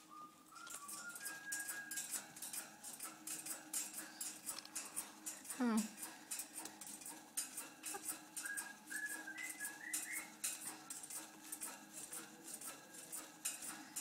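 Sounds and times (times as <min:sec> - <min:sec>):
parrot whistle: 0:00.0 - 0:02.2, 0:08.4 - 0:10.4
parrot clicking and rattling: 0:00.6 - 0:14.0.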